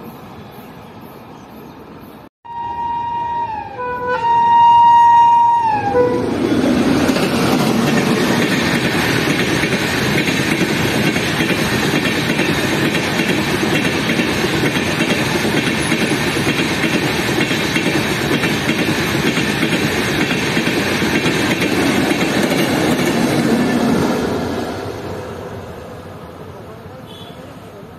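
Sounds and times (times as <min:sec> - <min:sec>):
train wheels rushing on rails: 0:05.9 - 0:26.5.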